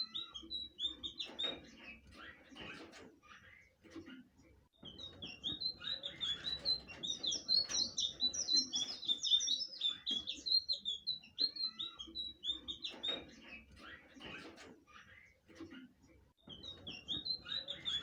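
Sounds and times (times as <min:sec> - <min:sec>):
bird twittering song: 0:00.0 - 0:02.1, 0:04.8 - 0:14.4, 0:16.4 - 0:18.0.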